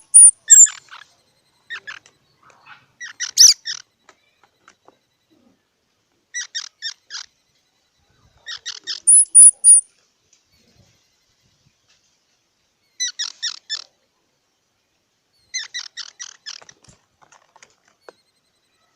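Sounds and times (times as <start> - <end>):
high-pitched squirrel squeaks: 0.0 - 4.4, 6.3 - 7.4, 8.4 - 9.9, 12.9 - 14.0, 15.3 - 16.8
squirrel chirping: 0.0 - 4.4, 6.3 - 7.5, 8.4 - 9.9, 12.8 - 14.0, 15.3 - 16.9.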